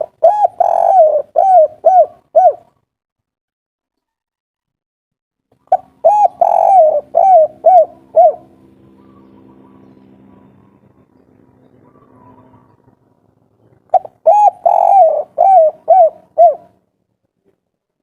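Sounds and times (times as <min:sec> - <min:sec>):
dove cooing: 0:00.0 - 0:02.8, 0:05.6 - 0:16.8
faint steady hum: 0:05.6 - 0:18.0.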